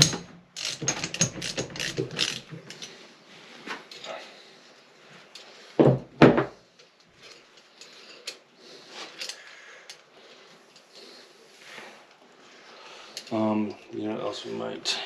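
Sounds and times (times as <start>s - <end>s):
tools and bolts clinking: 0.0s - 3.0s, 6.8s - 10.0s.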